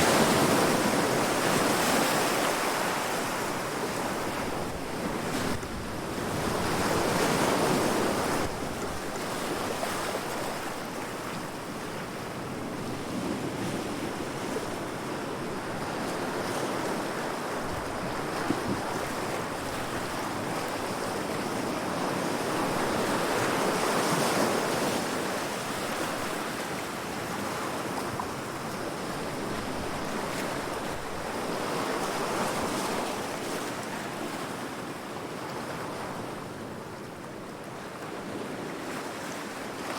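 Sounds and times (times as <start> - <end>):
ocean waves breaking on rocks: 0.0 - 12.5.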